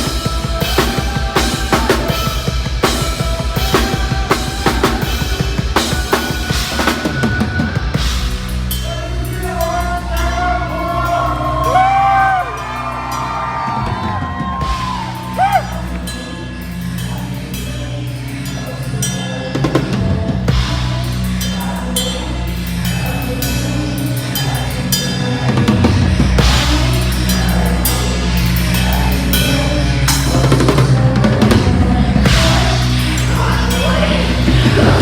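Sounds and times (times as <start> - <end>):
fast drumming: 0.0 - 8.7, 13.6 - 16.0, 25.4 - 35.0
heavy metal band playing: 0.0 - 35.0
low bass notes: 0.0 - 35.0.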